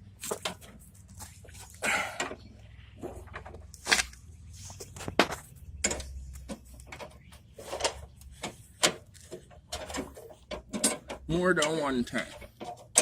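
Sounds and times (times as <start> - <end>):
sharp metal clanks and knocks: 5.2 - 13.0.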